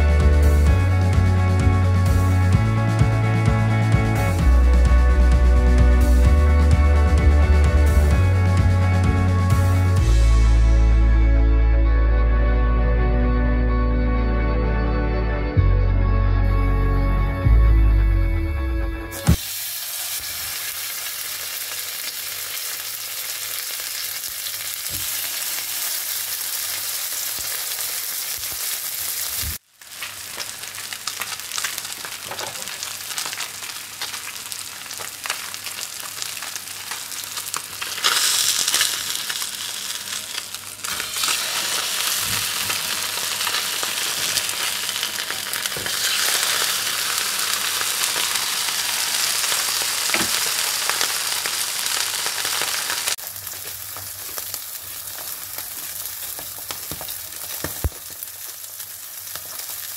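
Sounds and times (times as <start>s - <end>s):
fish searing in a frying pan: 19.2s - 59.9s.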